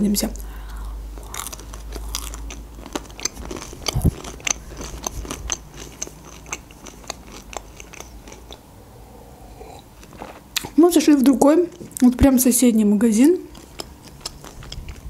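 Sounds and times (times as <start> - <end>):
crunchy chewing: 0.6 - 8.7, 9.4 - 10.8, 13.2 - 15.0.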